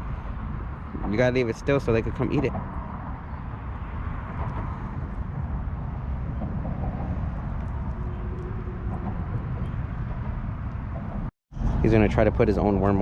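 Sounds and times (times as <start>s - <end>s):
low rumble: 4.0s - 12.1s.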